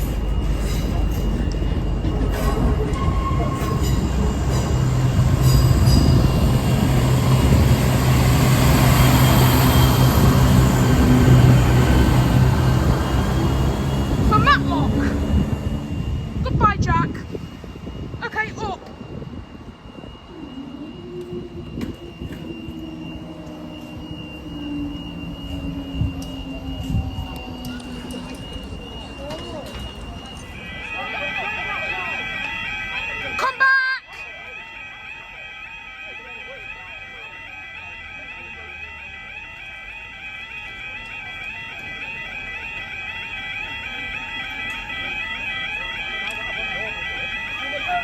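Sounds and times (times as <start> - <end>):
high-pitched whine: 0.0 - 33.4
diesel train engine drone: 0.0 - 48.0
train wheel and rail noise: 0.0 - 48.0.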